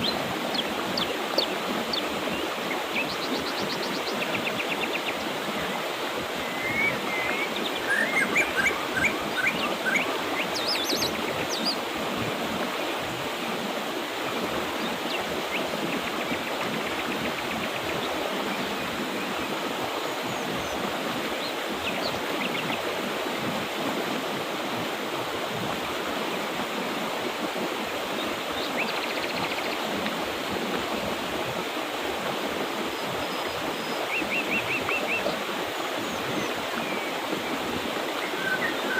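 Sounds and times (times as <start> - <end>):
birds chirping: 0.0 - 13.0, 32.8 - 38.9
river water running: 0.0 - 38.9.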